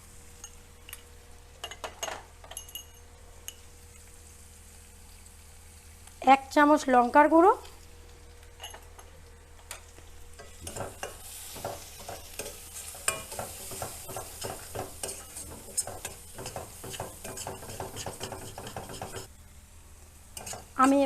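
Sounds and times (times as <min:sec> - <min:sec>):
paste sizzling in pan: 0:03.4 - 0:21.0
spatula scraping pan: 0:10.4 - 0:19.3, 0:20.4 - 0:21.0.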